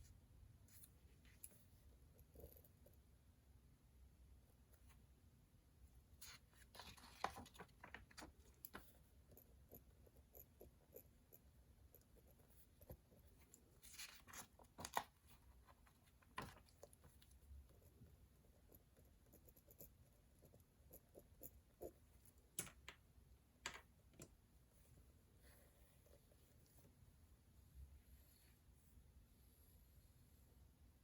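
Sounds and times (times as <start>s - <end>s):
low room hum: 0.0s - 31.0s.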